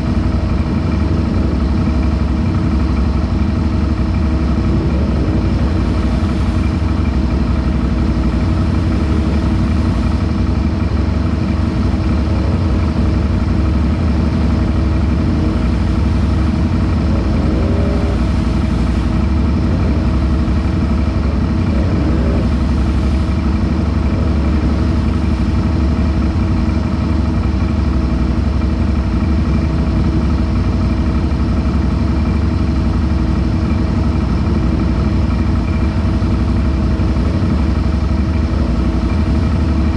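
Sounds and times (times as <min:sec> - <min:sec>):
vehicle engine idling and revving: 0:00.0 - 0:39.9.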